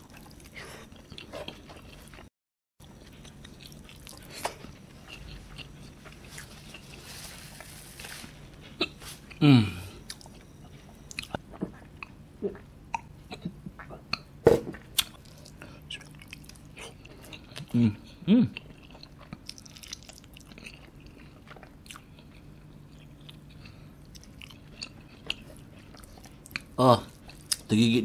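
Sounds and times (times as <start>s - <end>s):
man chewing with lip smacks: 0.0s - 7.0s, 10.0s - 17.8s, 18.5s - 27.7s
man groaning: 9.4s - 9.9s.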